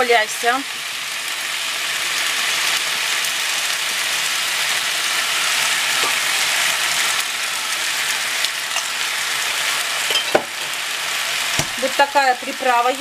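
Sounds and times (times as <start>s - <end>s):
stir-fry sizzling in a frying pan: 0.0s - 13.0s.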